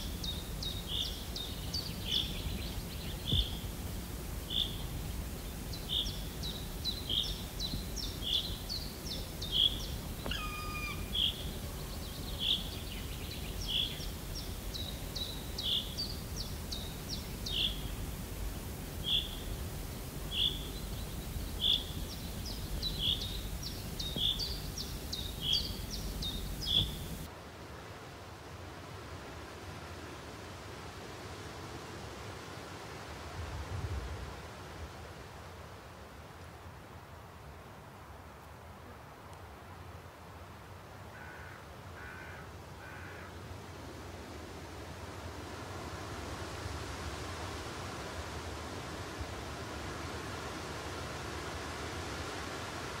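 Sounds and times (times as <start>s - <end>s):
low background noise: 0.0s - 53.0s
bird calling: 5.8s - 18.0s, 20.3s - 27.3s.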